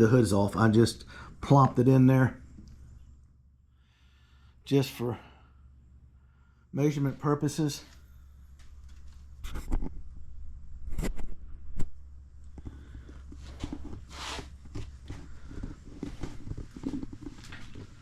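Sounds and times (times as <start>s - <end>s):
steady low hum: 0.0s - 18.0s
footsteps: 12.5s - 18.0s.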